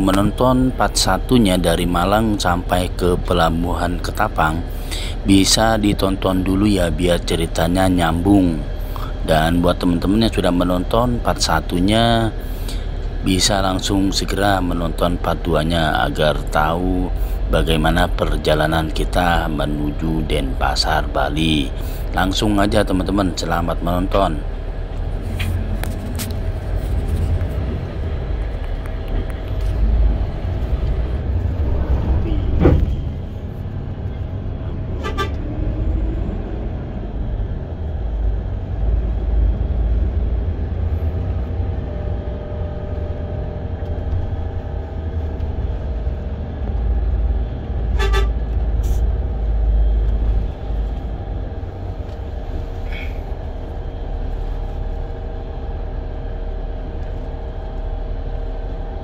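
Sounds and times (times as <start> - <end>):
diesel bus engine rumbling: 0.0 - 59.0
bus horn toots: 35.0 - 35.5, 47.9 - 48.5.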